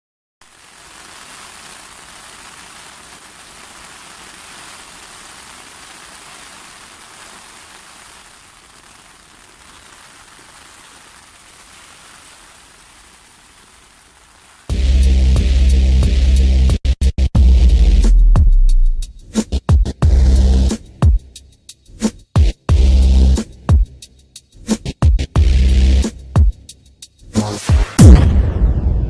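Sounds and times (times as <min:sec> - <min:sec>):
steady rain on a lake: 0:00.4 - 0:14.7.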